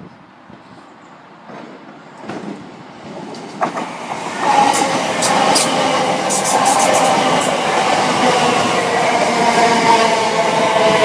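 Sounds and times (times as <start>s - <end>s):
wheels clicking on rails: 3.3s - 7.9s
electric train running in: 3.3s - 11.0s.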